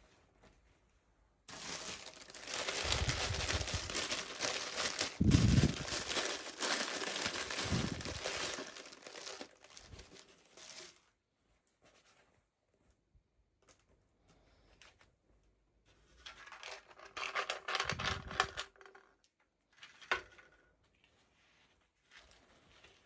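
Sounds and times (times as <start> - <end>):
packaging crinkling: 1.5 - 11.0.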